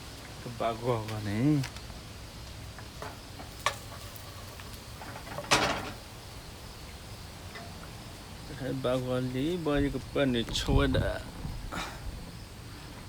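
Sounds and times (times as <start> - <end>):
low background noise: 0.0 - 13.0
cookware clatter: 5.1 - 6.0.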